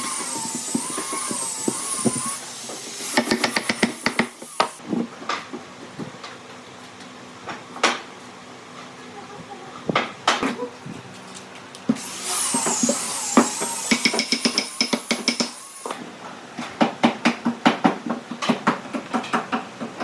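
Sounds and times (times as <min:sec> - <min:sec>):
hiss: 0:00.0 - 0:04.8, 0:12.0 - 0:16.0.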